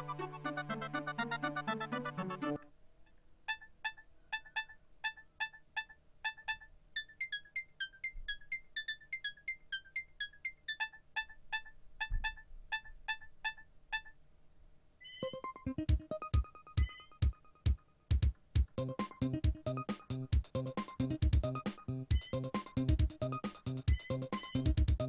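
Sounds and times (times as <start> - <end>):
mobile phone ringtone melody: 3.6 - 12.4, 15.0 - 17.6, 21.6 - 22.8, 23.9 - 24.9.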